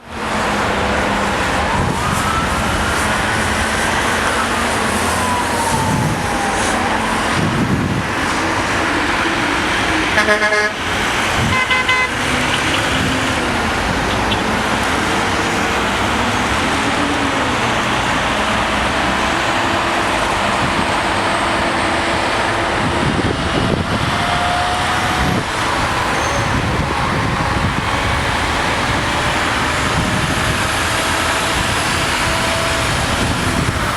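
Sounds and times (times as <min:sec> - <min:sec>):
freeway traffic: 0:00.0 - 0:33.9
car horn honks: 0:10.2 - 0:10.8, 0:11.4 - 0:13.0.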